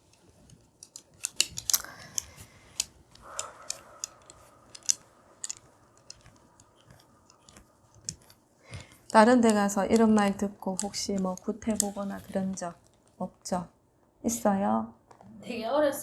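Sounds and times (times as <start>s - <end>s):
sharp clicks and ticks: 0.8s - 12.8s.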